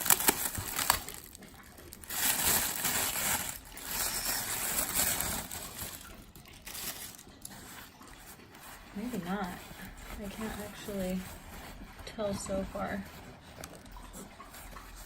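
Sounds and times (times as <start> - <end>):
tissue paper rustling and crinkling: 0.0 - 15.0.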